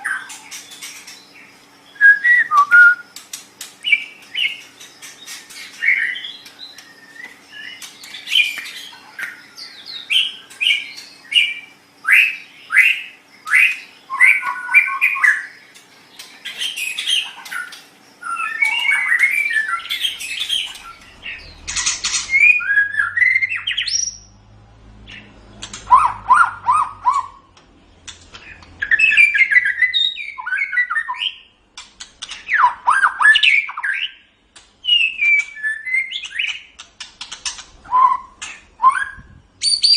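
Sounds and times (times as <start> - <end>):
songbird singing whistled phrases: 1.9 - 3.1, 5.8 - 15.6, 16.6 - 21.6, 22.3 - 24.3, 28.8 - 31.5, 32.5 - 34.2, 34.8 - 36.7, 37.9 - 39.9.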